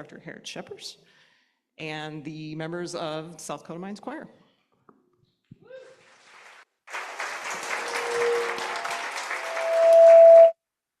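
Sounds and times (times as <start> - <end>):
audience applauding: 5.9 - 10.6
microphone feedback tone: 9.5 - 10.6.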